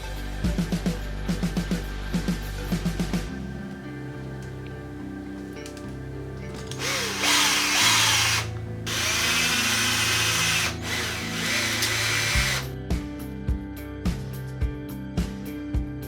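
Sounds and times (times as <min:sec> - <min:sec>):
background music: 0:00.0 - 0:16.0
small power tool running: 0:06.5 - 0:12.7.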